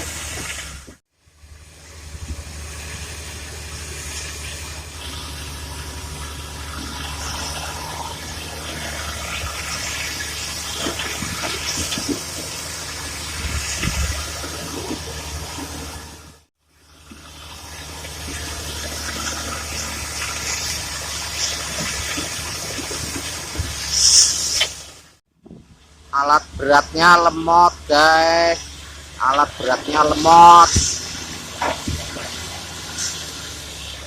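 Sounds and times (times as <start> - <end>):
diesel engines humming: 0.0 - 34.0
soil being loaded: 27.9 - 34.0.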